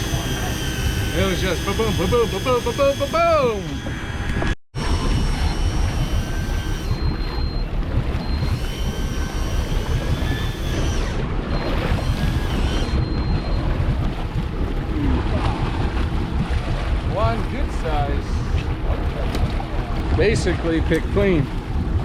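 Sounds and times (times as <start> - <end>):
faint high whining tones: 0.0 - 13.6
boat rumble: 0.0 - 22.0
wind buffeting microphone: 0.0 - 22.0.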